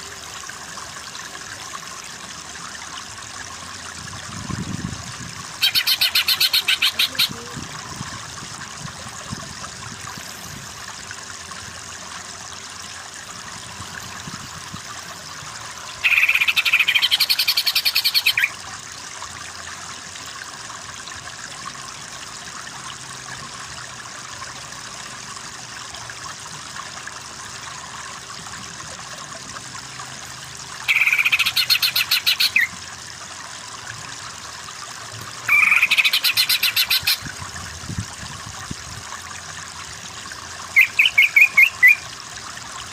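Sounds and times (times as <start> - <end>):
bird singing trilled chatter: 5.6 - 7.3.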